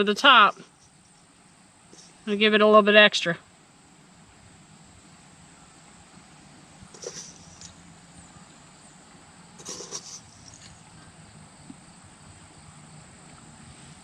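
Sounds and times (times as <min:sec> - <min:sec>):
faint steady hiss: 0:00.0 - 0:14.0
handling noise: 0:06.9 - 0:07.8.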